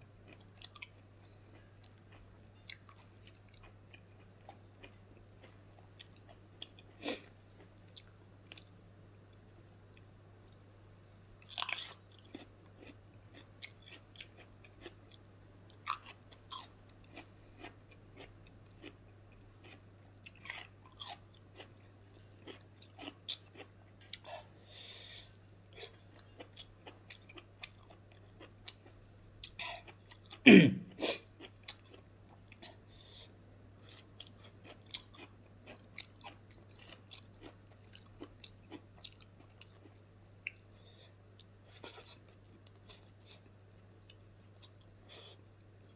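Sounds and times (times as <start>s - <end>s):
close chewing with mouth clicks: 11.4s - 15.2s, 15.8s - 24.5s, 25.1s - 30.4s, 31.2s - 33.2s, 33.8s - 45.7s.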